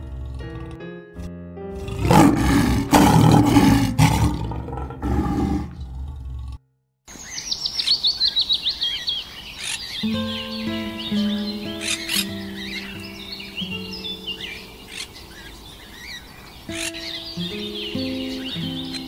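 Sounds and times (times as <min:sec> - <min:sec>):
animal roaring: 0:00.0 - 0:00.8, 0:01.7 - 0:06.6
background music: 0:00.0 - 0:05.7, 0:10.0 - 0:15.5, 0:16.7 - 0:19.0
songbird chirping: 0:07.1 - 0:19.0.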